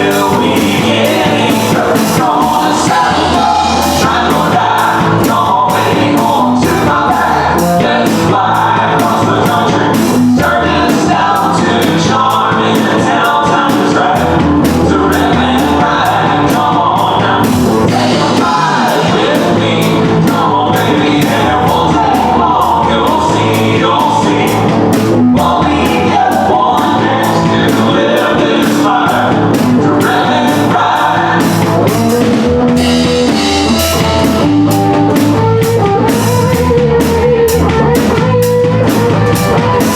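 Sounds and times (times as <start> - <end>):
country band playing: 0.0 - 39.9
lead vocal singing: 0.0 - 39.9.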